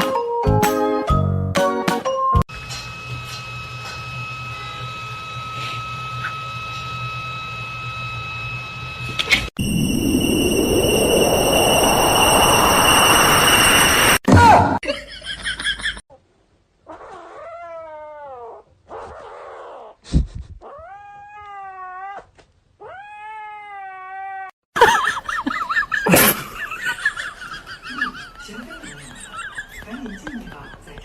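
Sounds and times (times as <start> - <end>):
cat yowling: 20.6 - 24.5.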